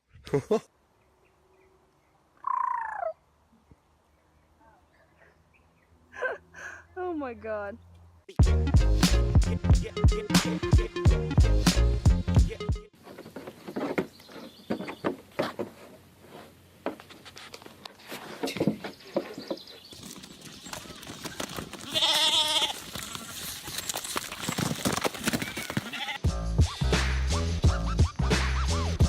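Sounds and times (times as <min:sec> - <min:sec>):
backing music: 0:08.4 - 0:12.9, 0:26.2 - 0:29.0
goat or sheep bleating: 0:21.8 - 0:23.4, 0:25.8 - 0:26.3.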